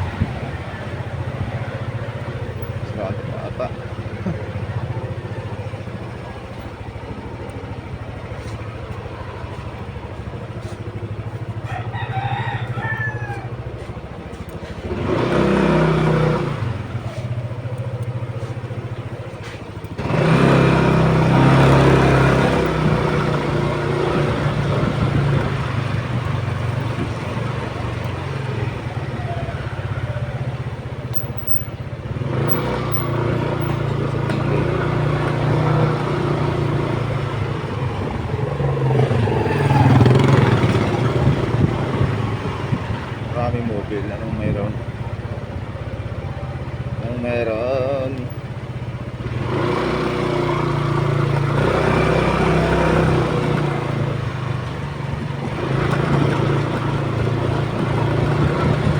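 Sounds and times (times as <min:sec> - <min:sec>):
motorcycle engine running: 0:00.0 - 0:58.9
rooster crowing: 0:11.6 - 0:14.0.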